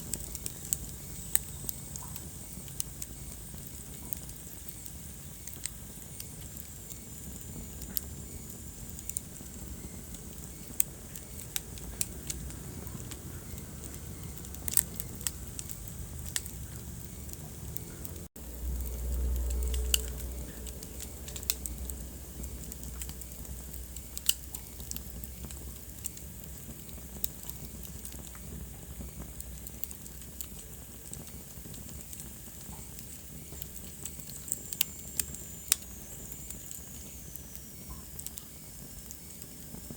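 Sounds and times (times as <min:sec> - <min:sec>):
wood fire crackling: 0:00.0 - 0:39.9
low rumble: 0:11.6 - 0:26.0.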